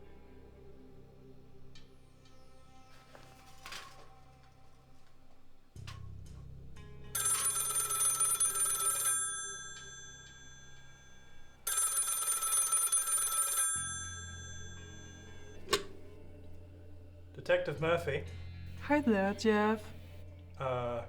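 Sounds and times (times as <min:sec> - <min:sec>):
telephone bell ringing: 0:07.2 - 0:16.2.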